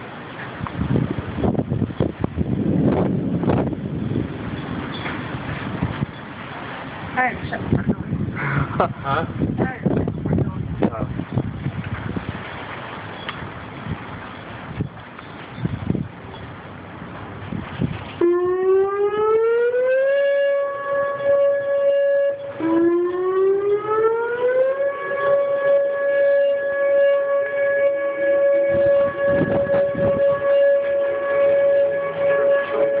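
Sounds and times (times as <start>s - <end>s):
warning siren winding up: 18.2s - 33.0s.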